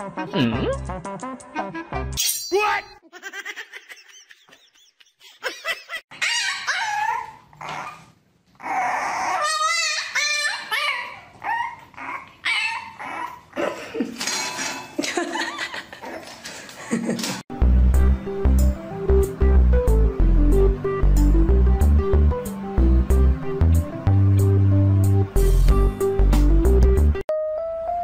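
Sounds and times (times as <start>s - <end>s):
dog whining yipping and barking: 6.1s - 13.5s.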